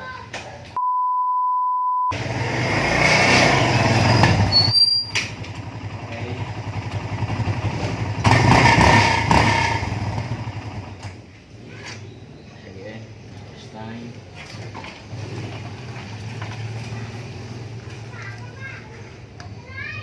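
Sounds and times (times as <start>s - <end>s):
engine running: 2.1s - 4.6s.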